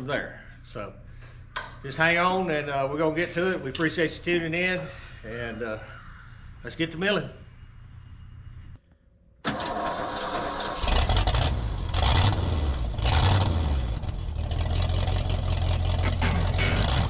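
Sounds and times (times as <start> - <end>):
engine starting and running: 9.4 - 17.0.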